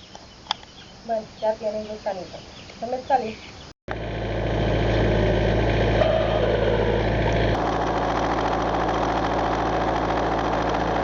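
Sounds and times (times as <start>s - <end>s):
loader engine idling: 3.9s - 11.0s.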